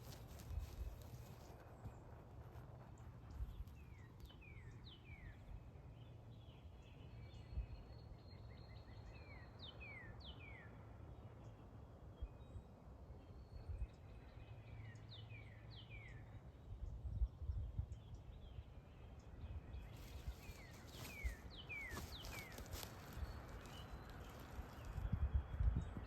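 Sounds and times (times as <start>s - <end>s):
wind rumbling on microphone: 0.0s - 5.5s, 16.6s - 26.0s
songbird singing: 0.0s - 26.0s.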